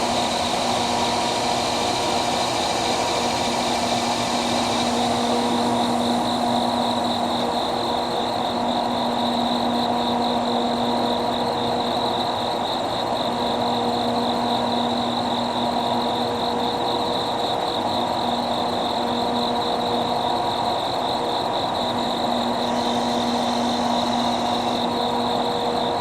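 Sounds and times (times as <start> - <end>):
diesel locomotive engine humming: 0.0 - 7.4, 22.0 - 26.0
insects trilling: 0.0 - 26.0.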